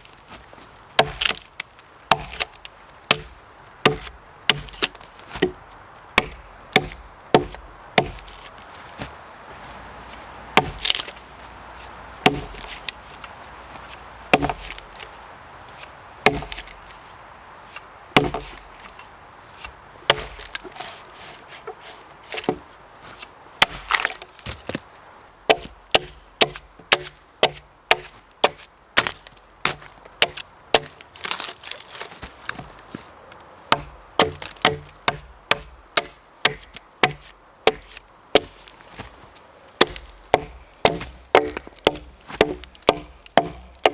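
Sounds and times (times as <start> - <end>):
axe chopping wood: 1.0 - 5.6, 6.2 - 8.6, 10.5 - 11.2, 12.2 - 13.0, 14.3 - 15.1, 15.7 - 16.9, 18.2 - 18.9, 20.1 - 20.9, 23.6 - 24.8, 25.5 - 32.2, 33.7 - 38.8, 39.8 - 43.9.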